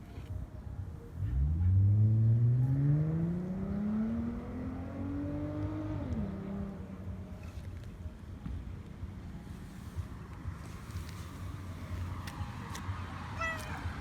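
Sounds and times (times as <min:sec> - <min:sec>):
vehicle engine accelerating: 0:01.1 - 0:07.6.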